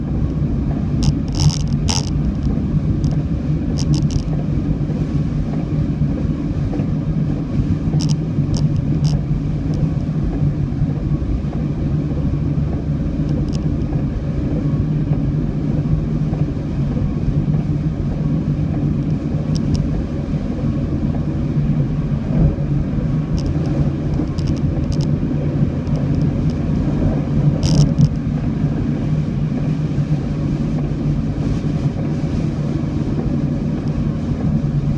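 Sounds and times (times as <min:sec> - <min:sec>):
car engine and road noise: 0:00.0 - 0:34.9.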